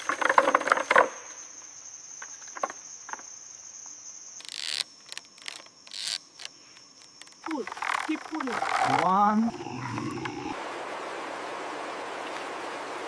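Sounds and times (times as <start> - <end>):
insects chirring: 0.0 - 10.7
loud crackling clicks: 4.4 - 9.1.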